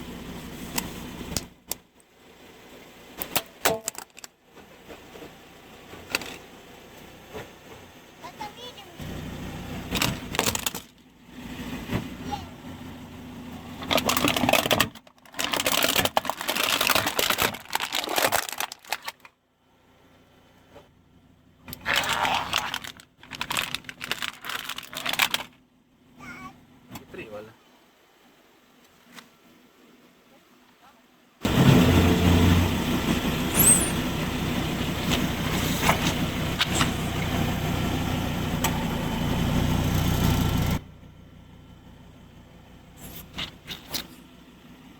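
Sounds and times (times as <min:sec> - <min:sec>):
car tyre crushing brittle objects: 0:03.2 - 0:04.4, 0:09.8 - 0:11.2, 0:13.7 - 0:19.4, 0:21.6 - 0:25.7, 0:43.0 - 0:44.4
car engine running: 0:05.1 - 0:14.7, 0:31.4 - 0:44.9
sharp cracks: 0:21.7 - 0:25.6.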